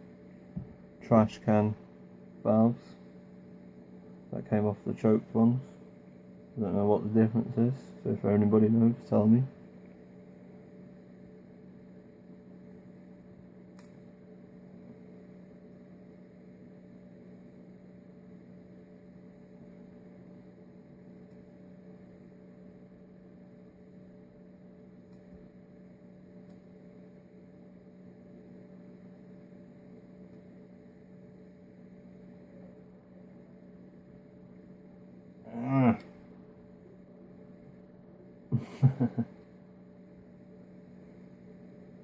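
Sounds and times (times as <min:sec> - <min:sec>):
faint electrical hum: 0:00.0 - 0:42.0.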